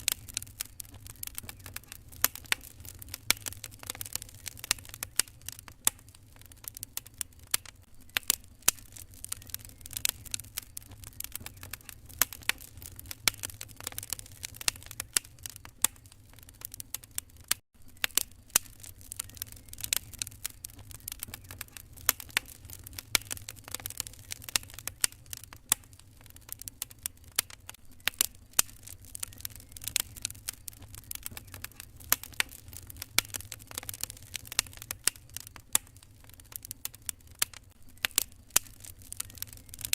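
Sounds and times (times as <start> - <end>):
low steady rumble: 0.0 - 17.1
wood fire crackling and popping: 0.0 - 39.9.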